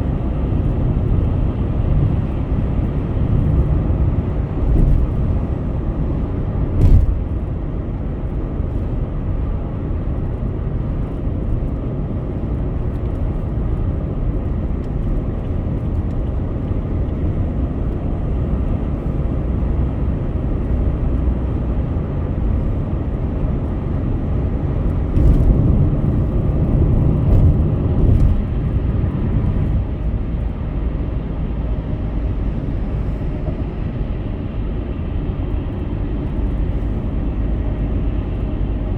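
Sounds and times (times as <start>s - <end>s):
tyres and engine rumble: 0.0s - 38.9s
car thumps and bumps: 6.6s - 7.5s, 24.9s - 29.6s.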